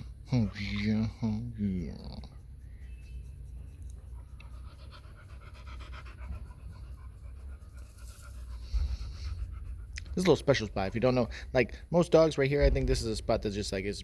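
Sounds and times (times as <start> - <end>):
dog panting: 1.8 - 12.3
low rumble: 11.8 - 14.0.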